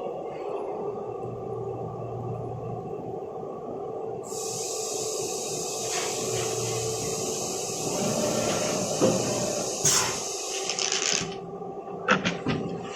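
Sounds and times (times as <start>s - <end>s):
loud hiss: 4.2s - 11.2s.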